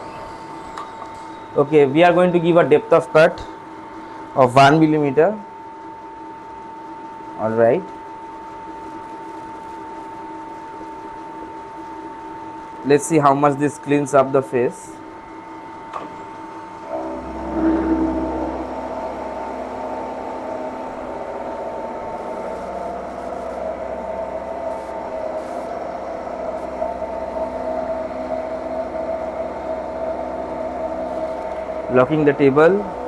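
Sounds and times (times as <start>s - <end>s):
milling machine running: 0.0s - 5.3s, 12.0s - 33.0s.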